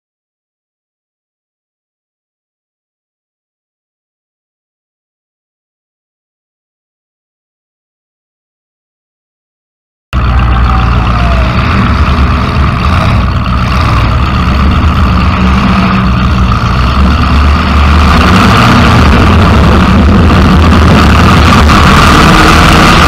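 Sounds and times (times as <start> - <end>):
loud car engine through open exhaust: 10.2 - 23.0.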